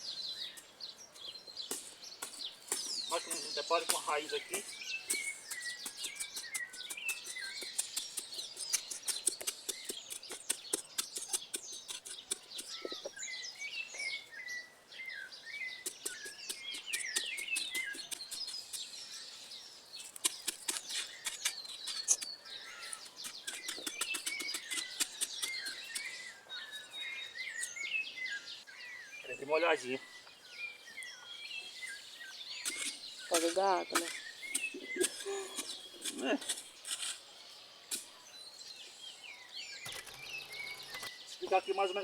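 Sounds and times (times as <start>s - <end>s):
small birds chirping: 0.0s - 42.0s
tool digging into earth: 1.6s - 13.2s, 15.6s - 26.9s, 32.5s - 38.3s.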